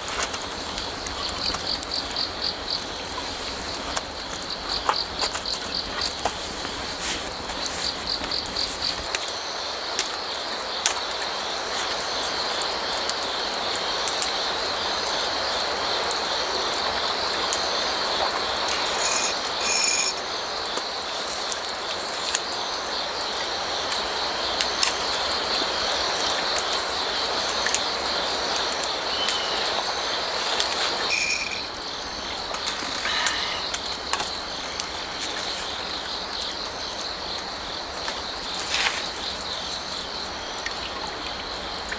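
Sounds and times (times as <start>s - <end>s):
crickets trilling: 0.0s - 41.9s
short ringing sounds: 19.0s - 20.2s, 31.1s - 31.8s.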